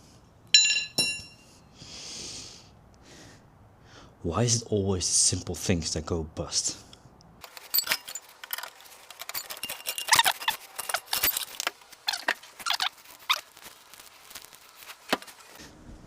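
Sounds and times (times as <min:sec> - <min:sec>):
metal tools clinking: 0:00.5 - 0:01.5, 0:07.4 - 0:12.8.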